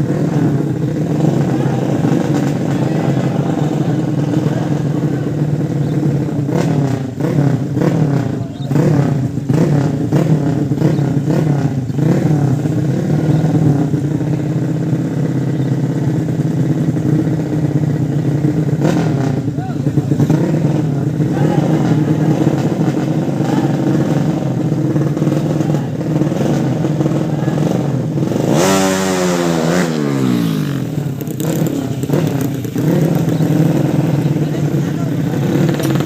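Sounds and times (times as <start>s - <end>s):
motorcycle engines revving: 0.0s - 36.0s.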